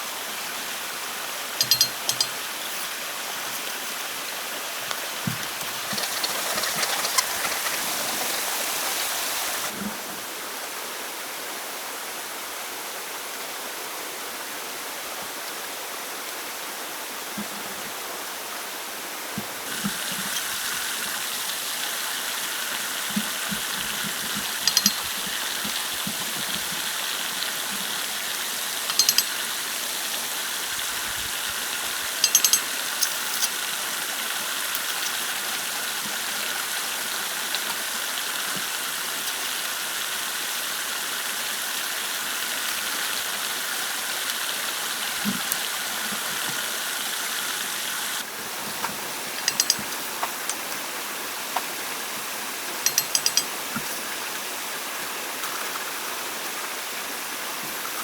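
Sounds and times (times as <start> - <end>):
running water: 0.0 - 12.4, 13.0 - 58.0
high-pitched rattling bursts: 1.6 - 2.6, 24.5 - 25.7, 28.8 - 29.6, 32.1 - 33.6, 52.9 - 53.5.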